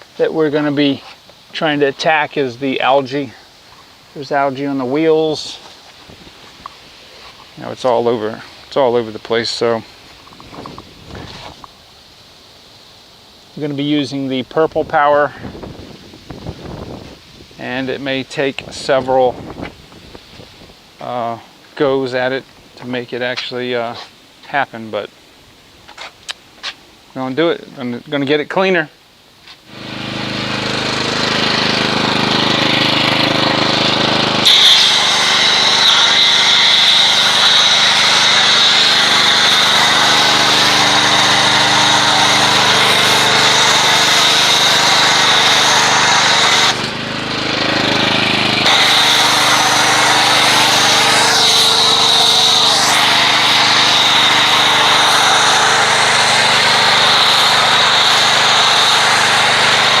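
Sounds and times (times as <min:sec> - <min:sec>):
pressure washer motor humming: 0:29.7 - 1:00.0
water jet hissing: 0:29.7 - 1:00.0.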